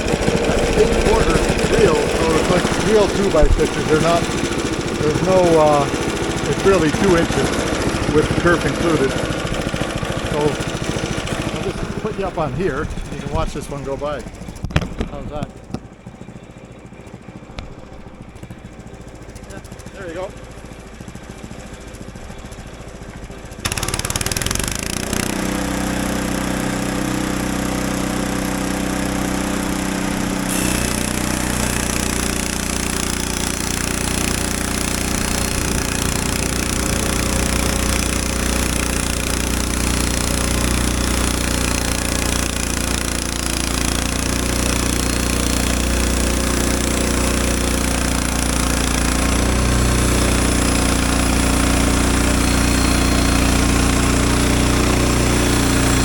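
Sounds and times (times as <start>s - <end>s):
band sawmill sawing through log: 0.0s - 14.5s, 23.6s - 56.0s.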